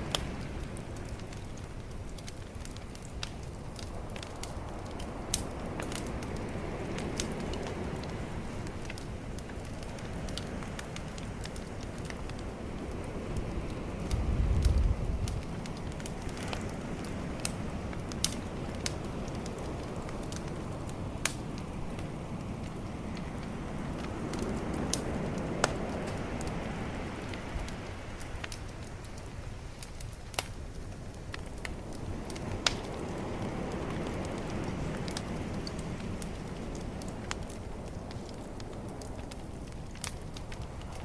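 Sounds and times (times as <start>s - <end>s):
bonfire crackling and popping: 0.0s - 41.0s.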